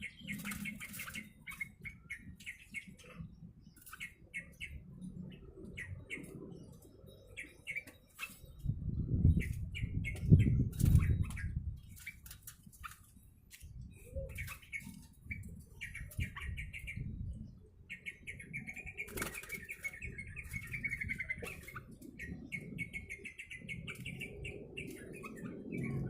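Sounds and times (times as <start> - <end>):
wing flutters: 0.0 - 1.8, 9.4 - 15.1, 19.0 - 22.3.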